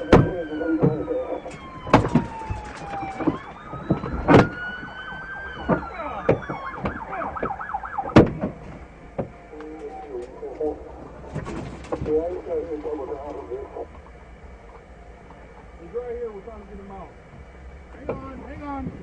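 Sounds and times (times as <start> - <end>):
police siren wailing and yelping: 0.0 - 8.4, 9.5 - 11.3
sharp knocks: 5.6 - 9.4.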